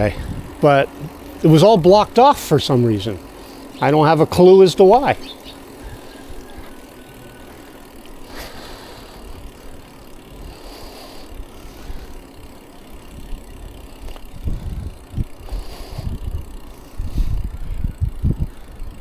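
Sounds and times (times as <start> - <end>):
wind buffeting microphone: 0.0 - 7.6, 13.1 - 19.0
bicycle road noise: 0.0 - 19.0.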